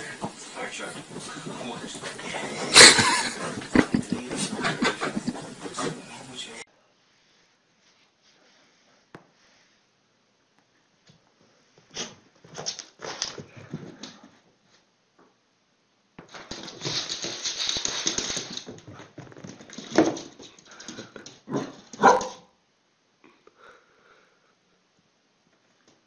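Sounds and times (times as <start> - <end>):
dog scuffling: 0.0 - 6.6, 16.2 - 22.4
dog barking sharply: 21.5 - 22.5.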